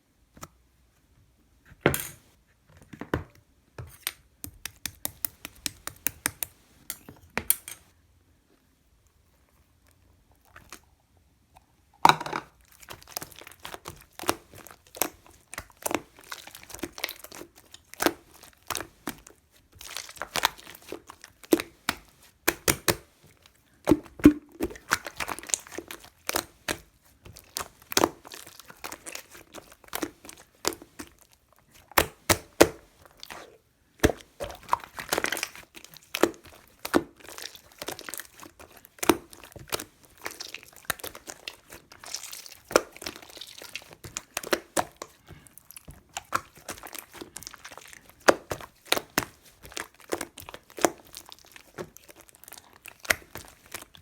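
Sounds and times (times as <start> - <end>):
material crinkling and tearing: 33.0 - 54.0.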